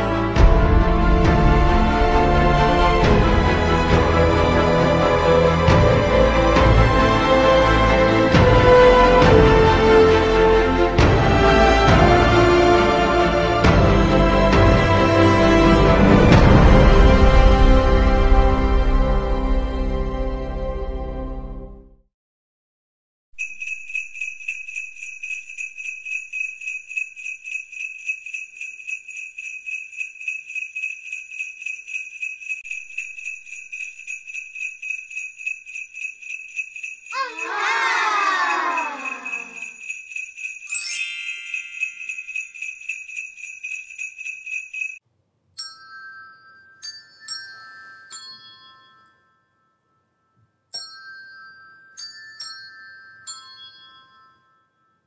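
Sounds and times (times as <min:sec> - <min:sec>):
sleigh bells jingling: 0:23.4 - 0:45.0, 0:45.6 - 0:49.5, 0:50.8 - 0:54.8
bright chiming notes: 0:36.8 - 0:43.2
falling wavering call: 0:40.7 - 0:42.4.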